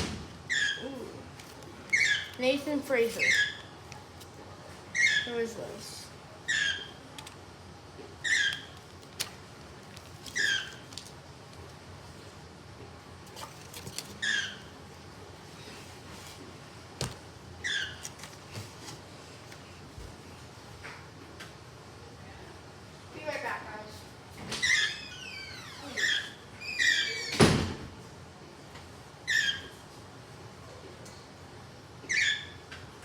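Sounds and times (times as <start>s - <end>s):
small animal squeaky chirps: 4.9s - 5.4s, 6.4s - 7.0s, 32.1s - 32.6s.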